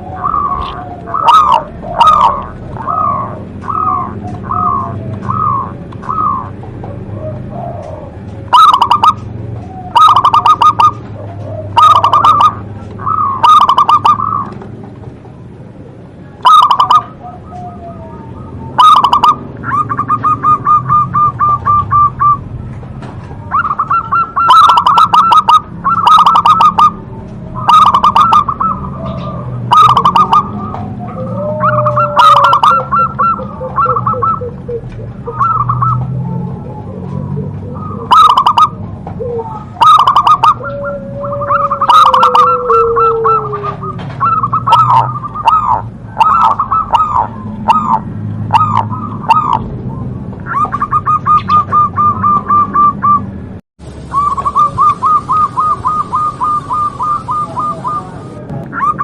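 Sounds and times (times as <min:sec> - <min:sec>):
dove cooing: 0:00.0 - 0:53.3, 0:54.0 - 0:59.0.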